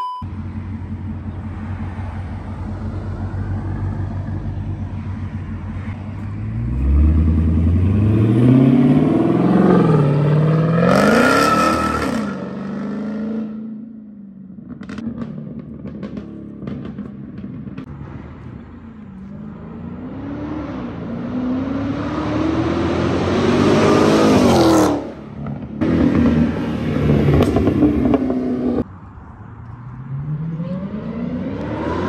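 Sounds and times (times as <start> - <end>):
loud car engine revving: 0.4 - 13.9, 19.3 - 28.9, 30.1 - 32.0.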